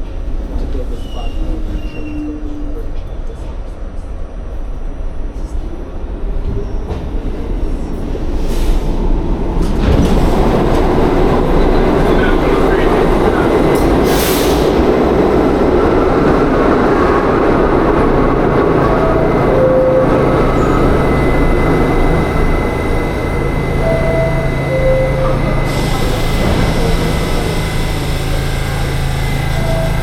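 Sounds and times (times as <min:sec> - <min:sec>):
subway train rumbling: 0:00.0 - 0:30.0
two-note falling tone: 0:18.8 - 0:27.2.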